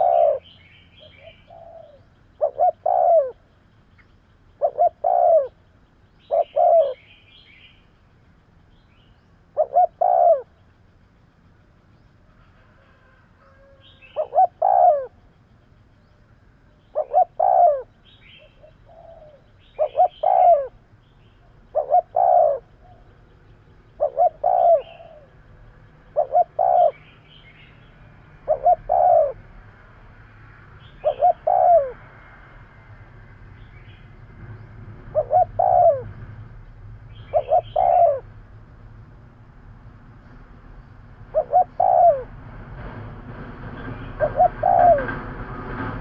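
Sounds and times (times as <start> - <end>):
dove cooing: 0.0 - 7.2, 9.4 - 10.6, 12.5 - 15.3, 16.6 - 27.8, 28.4 - 29.6, 30.8 - 32.1, 35.0 - 36.3, 37.1 - 38.4, 41.2 - 43.0, 44.1 - 46.0.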